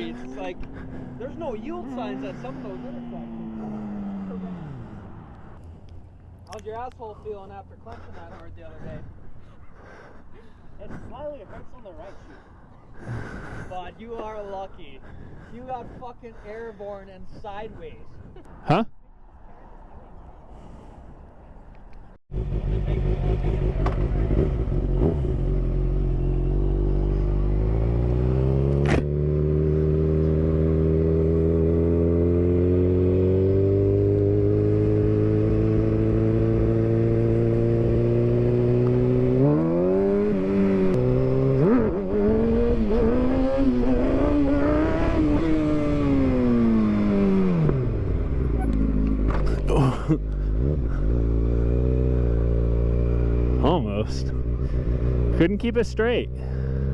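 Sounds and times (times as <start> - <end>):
motorcycle engine revving: 0.0 - 5.6, 22.3 - 56.9.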